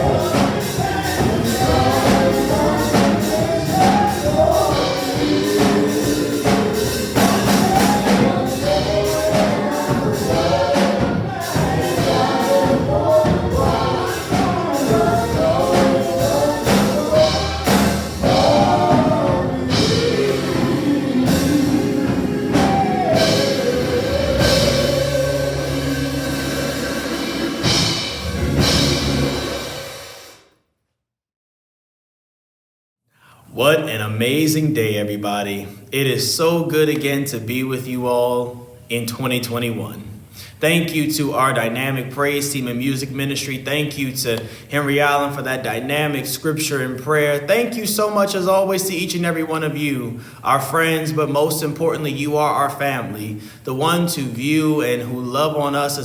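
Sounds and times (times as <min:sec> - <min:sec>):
gospel choir with band: 0:00.0 - 0:30.4.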